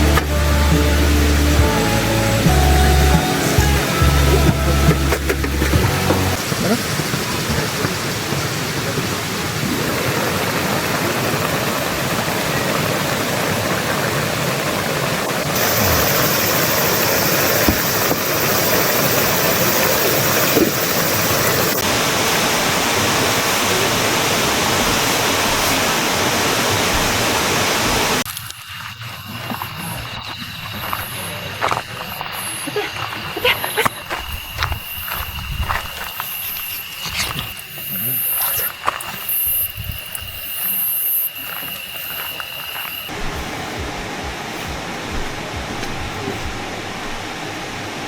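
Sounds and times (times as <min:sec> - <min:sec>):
stream water rushing: 0:00.0 - 0:28.3, 0:43.1 - 0:48.0.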